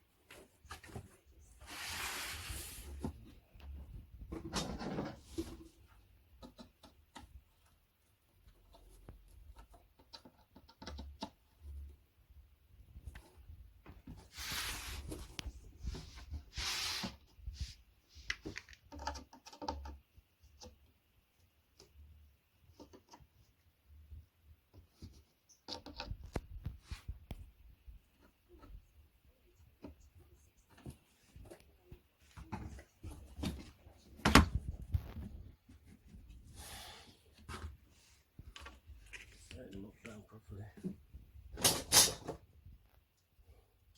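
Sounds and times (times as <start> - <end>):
furniture parts scraping: 0.7 - 3.2, 14.2 - 17.2
small clicks and knocks: 18.2 - 20.9.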